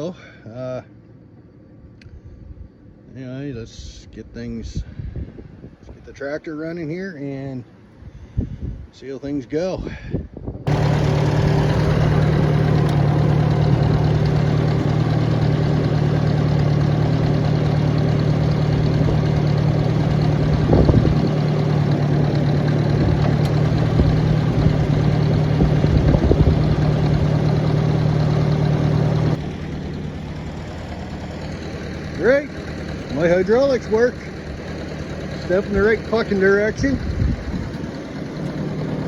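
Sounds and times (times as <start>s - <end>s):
tractor engine running: 10.7s - 39.0s.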